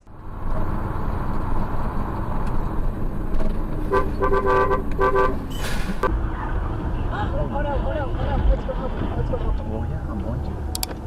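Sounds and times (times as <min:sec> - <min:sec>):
road traffic rumble: 0:00.0 - 0:11.0
car horn beeping: 0:03.8 - 0:05.8.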